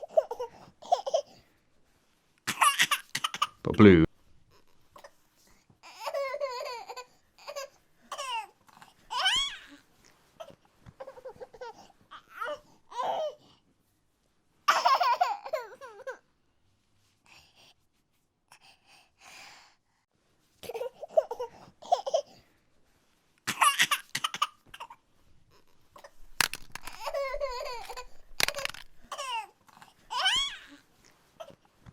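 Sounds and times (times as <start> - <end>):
small child laughing and babbling: 26.8 - 30.8.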